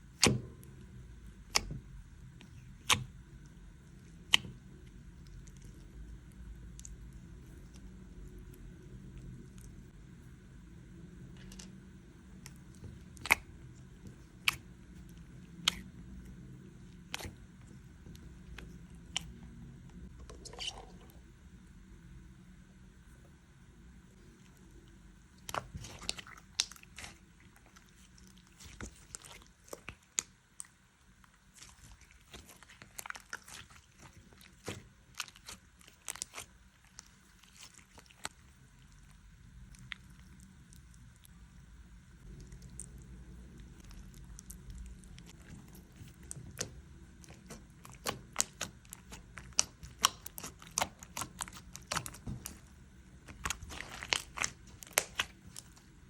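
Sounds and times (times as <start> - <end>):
low steady hum: 0.0 - 56.0
slime clicking and popping: 25.4 - 27.2, 43.8 - 55.8.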